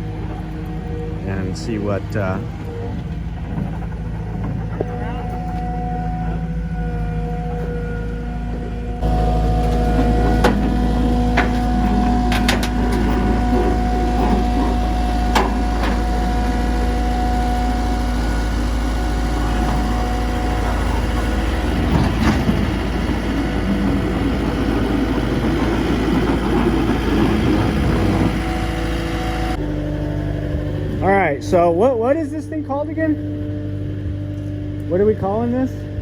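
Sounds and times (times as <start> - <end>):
vehicle engine idling: 0.0 - 36.0
short knocks and clanks: 8.5 - 28.7.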